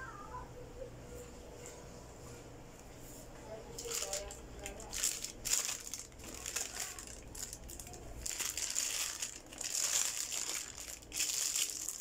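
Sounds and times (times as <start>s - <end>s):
plastic wrapping crinkling: 3.8s - 12.0s.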